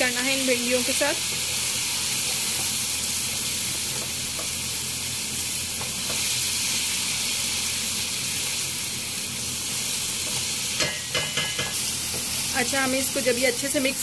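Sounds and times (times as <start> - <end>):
food sizzling in a wok: 0.0 - 14.0
spatula tapping pan: 10.3 - 12.3.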